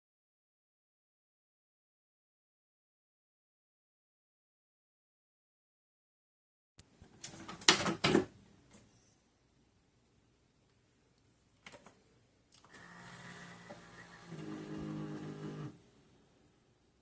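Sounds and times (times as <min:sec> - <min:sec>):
coffee maker humming: 0:12.7 - 0:15.8.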